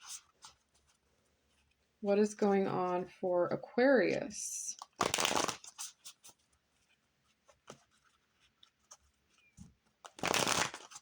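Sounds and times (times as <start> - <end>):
cards shuffling: 4.8 - 6.4, 10.0 - 11.0
cards clicking and tapping: 10.1 - 11.0.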